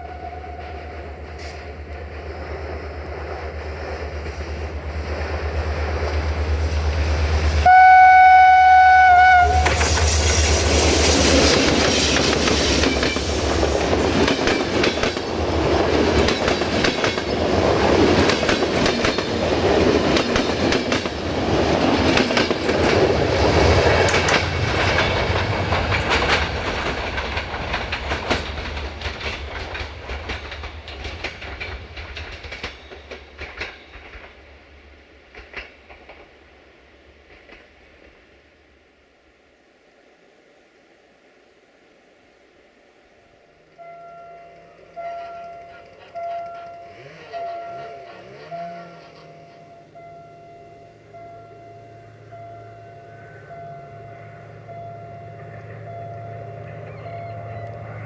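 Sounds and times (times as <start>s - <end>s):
train horn: 0.0s - 1.6s, 7.6s - 10.0s, 44.6s - 49.9s
wheels clicking over rail joints: 0.5s - 7.7s, 9.5s - 34.5s, 35.3s - 36.4s, 43.8s - 52.6s
locomotive diesel engine running: 44.8s - 58.0s.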